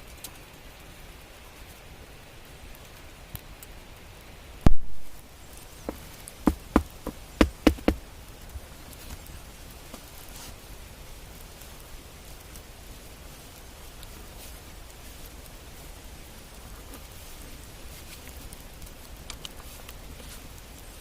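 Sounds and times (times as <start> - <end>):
steady faint hiss: 0.0 - 21.0
loud sharp knock: 5.9 - 8.0.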